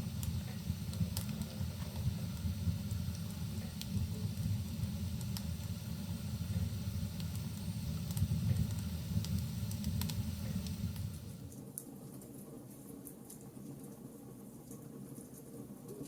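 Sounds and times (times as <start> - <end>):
burning logs crackling: 0.0 - 11.6
fire rumbling: 0.0 - 11.6.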